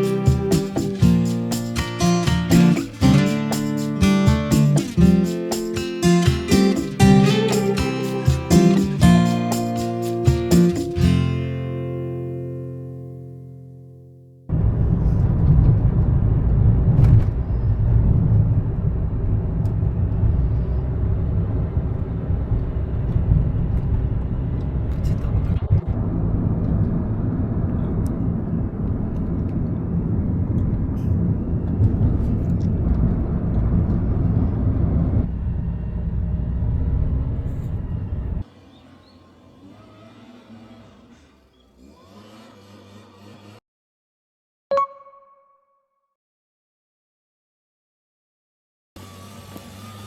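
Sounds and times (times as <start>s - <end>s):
vehicle rumbling in motion: 14.5s - 42.5s.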